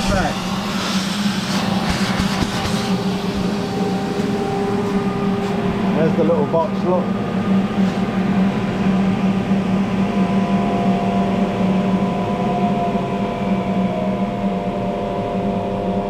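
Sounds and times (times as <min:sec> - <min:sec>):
electric blower fan humming: 0:00.0 - 0:16.0.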